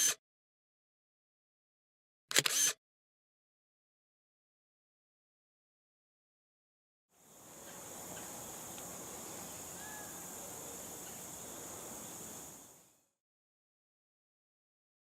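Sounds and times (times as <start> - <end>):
high-pitched insect chorus: 7.2 - 13.1.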